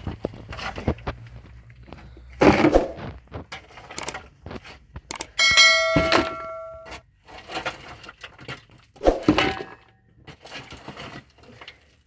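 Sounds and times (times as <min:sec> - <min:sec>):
knocks and scrapes: 0:00.0 - 0:12.0
metal object struck ringing: 0:05.4 - 0:06.9.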